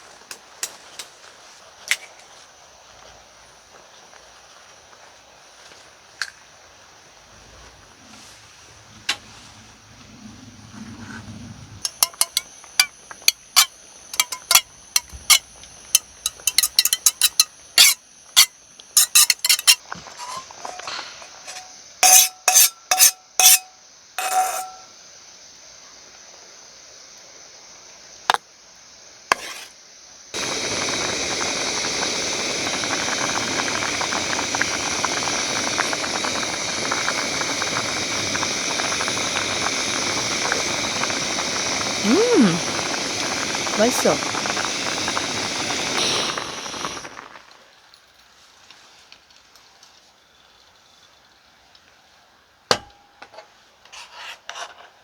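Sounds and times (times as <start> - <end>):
soup boiling hiss: 11.8 - 25.5, 28.9 - 47.8
metal utensils clinking on pot: 11.9 - 12.9, 13.6 - 24.9.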